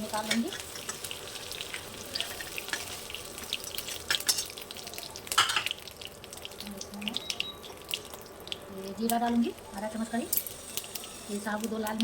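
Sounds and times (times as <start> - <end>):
food sizzling in hot oil: 0.0 - 12.0
spoon stirring in pan: 0.1 - 6.0.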